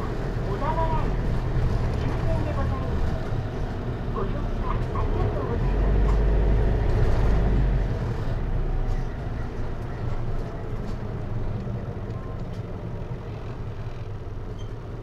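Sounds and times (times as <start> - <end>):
bus diesel engine rumble: 0.0 - 15.0.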